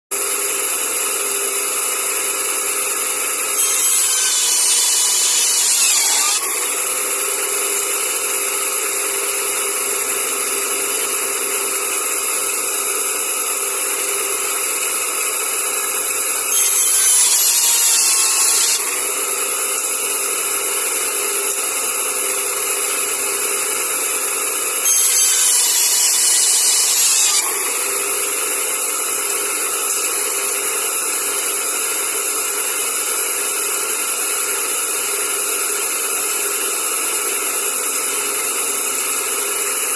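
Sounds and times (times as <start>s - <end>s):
band saw running: 0.1s - 39.9s
band saw cutting with hiss: 3.3s - 8.9s, 16.2s - 21.9s, 23.6s - 33.2s.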